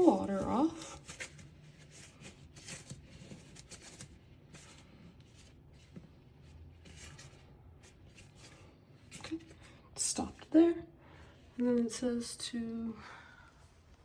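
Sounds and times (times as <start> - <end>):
light handling noises: 0.0 - 9.8.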